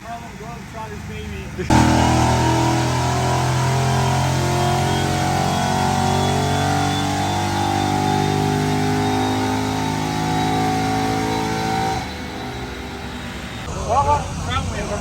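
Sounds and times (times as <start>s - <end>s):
car engine at high revs: 1.7s - 13.7s.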